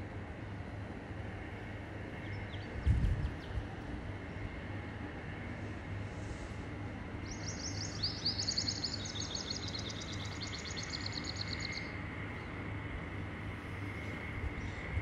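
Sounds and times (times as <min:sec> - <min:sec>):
low background rumble: 0:00.0 - 0:15.0
small birds trilling: 0:07.2 - 0:12.0.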